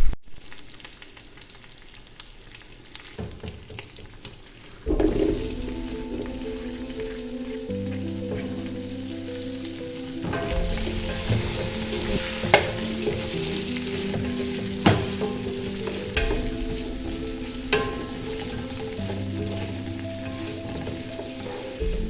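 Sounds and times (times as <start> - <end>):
food sizzling in a pan: 0.3 - 22.0
soft instrumental music: 4.9 - 22.0
utensil knocking against pan: 10.2 - 22.0.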